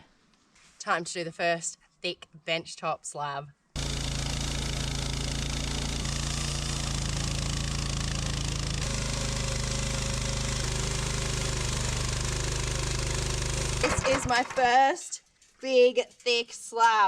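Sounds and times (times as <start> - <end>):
sawmill engine running under load: 3.8 - 14.6.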